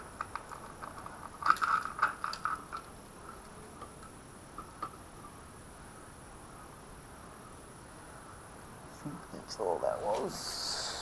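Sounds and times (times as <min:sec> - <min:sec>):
small metal parts clinking: 0:00.2 - 0:03.5.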